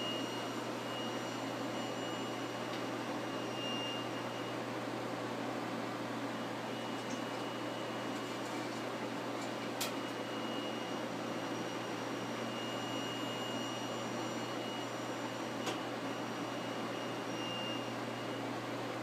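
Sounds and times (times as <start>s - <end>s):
high-pitched whine: 0.0s - 4.5s.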